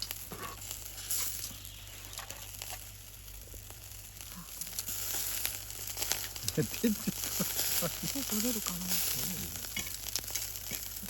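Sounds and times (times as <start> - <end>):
food sizzling: 0.0 - 11.0.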